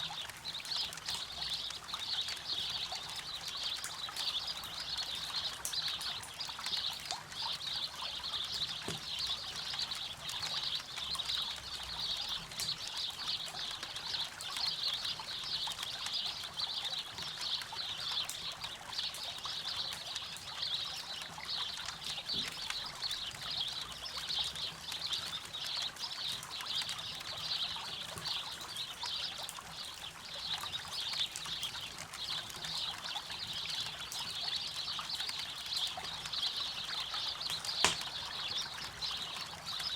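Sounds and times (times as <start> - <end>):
river trickling: 0.0 - 39.9
campfire crackling: 37.4 - 39.5.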